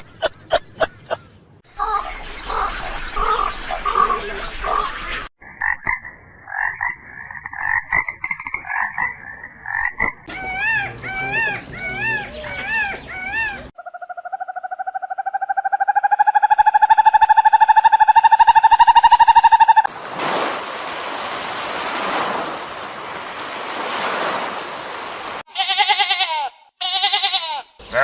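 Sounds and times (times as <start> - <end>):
rising and falling animal calls: 0.5 - 5.3, 10.3 - 19.9.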